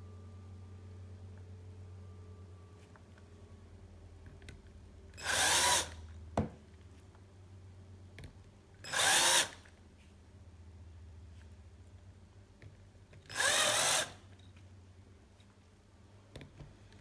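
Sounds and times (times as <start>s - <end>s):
power drill drilling: 5.2s - 6.0s, 8.9s - 9.6s, 13.3s - 14.2s.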